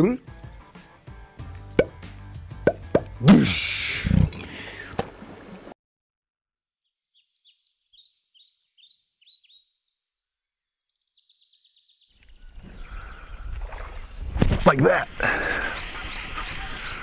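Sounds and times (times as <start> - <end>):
songbird whistling and trilling: 7.1 - 12.0.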